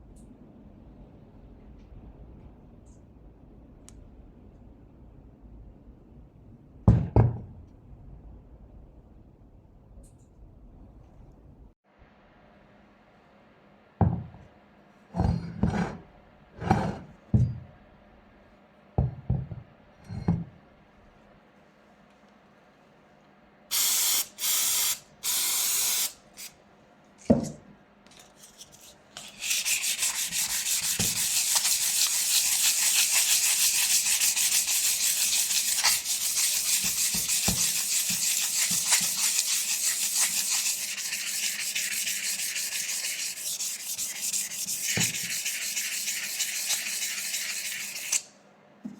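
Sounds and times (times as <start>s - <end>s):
sanding metal scraping: 28.8s - 48.2s.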